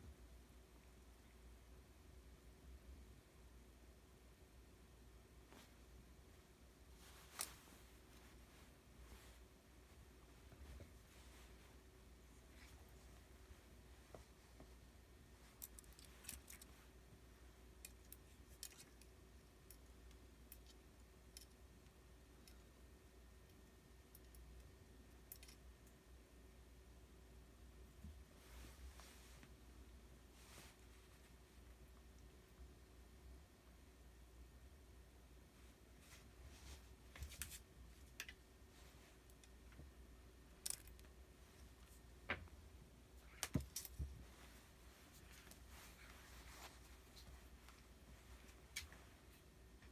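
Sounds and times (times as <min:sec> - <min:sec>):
low steady hum: 0:00.0 - 0:49.9
faint clicks and rustles: 0:05.4 - 0:22.9, 0:35.4 - 0:49.9
faint light clicks and ticks: 0:17.7 - 0:26.0.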